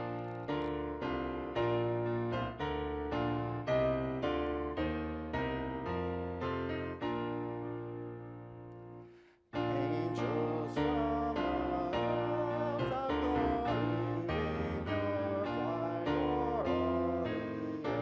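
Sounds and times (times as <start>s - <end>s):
keyboard playing hymn: 9.6s - 18.0s
voices singing: 9.7s - 18.0s.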